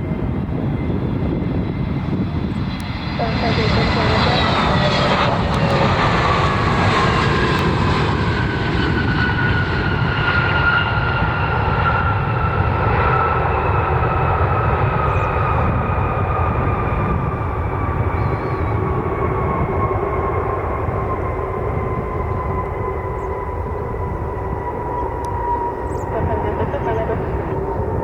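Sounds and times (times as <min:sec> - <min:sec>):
jet engines passing close: 0:00.0 - 0:28.0.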